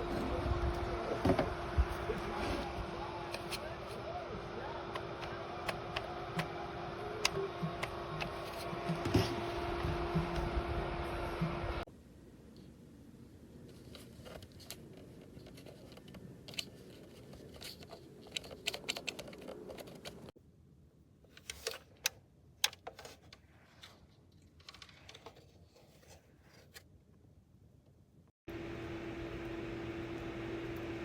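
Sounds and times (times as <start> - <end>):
handling clicks and rustling: 13.6 - 20.4, 21.2 - 26.9.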